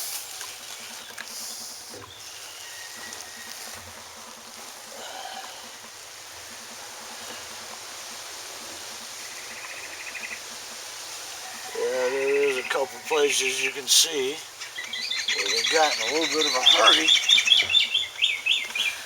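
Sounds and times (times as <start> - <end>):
steady hissing noise: 0.0 - 19.0
rapid chirping trill: 11.7 - 19.0.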